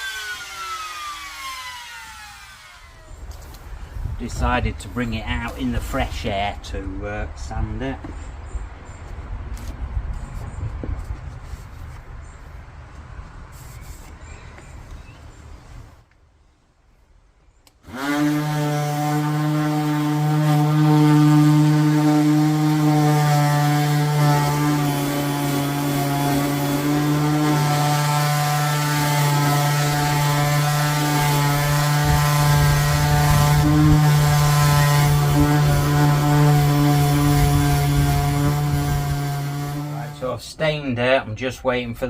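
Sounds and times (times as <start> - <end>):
electric power sander running: 0.0 - 3.6, 17.8 - 40.2.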